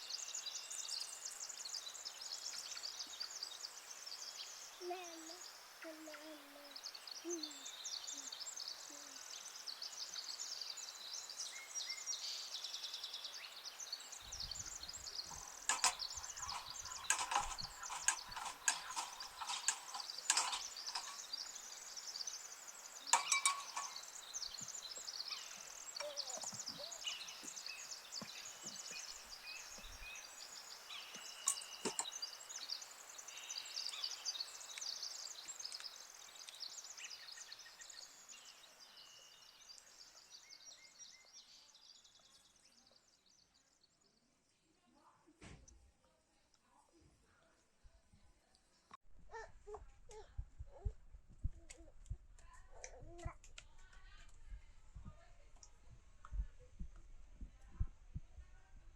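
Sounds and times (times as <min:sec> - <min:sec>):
small birds chirping: 0:00.0 - 0:45.4, 0:46.4 - 0:58.7
sharp knocks and clatter: 0:15.3 - 0:21.3, 0:23.1 - 0:24.1.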